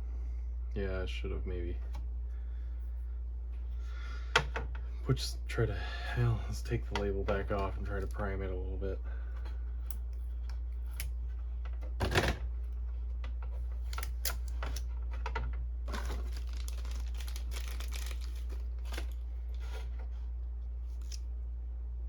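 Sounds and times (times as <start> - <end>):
steady low hum: 0.0 - 22.0
sticky label peeling crackle: 15.9 - 19.6.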